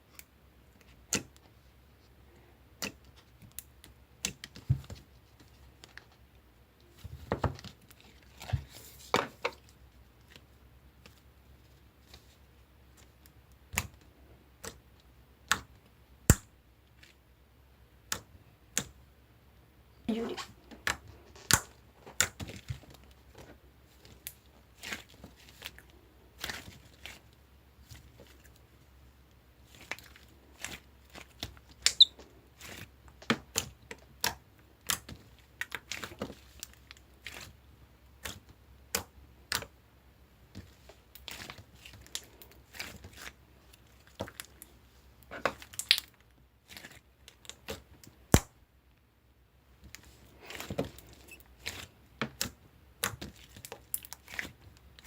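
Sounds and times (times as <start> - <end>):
slime squished by hand: 45.4 - 48.6.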